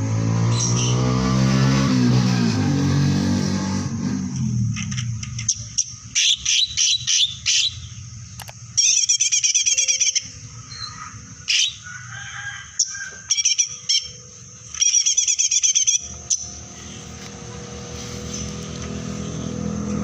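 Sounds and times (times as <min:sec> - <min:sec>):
songbird trilling and chipping: 0:04.9 - 0:11.9, 0:12.7 - 0:17.6.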